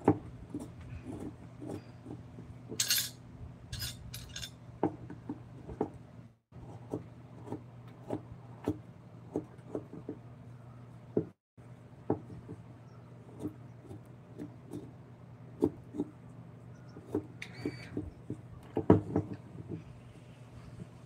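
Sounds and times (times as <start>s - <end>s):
wooden knocks from carving tools: 12.0s - 12.7s.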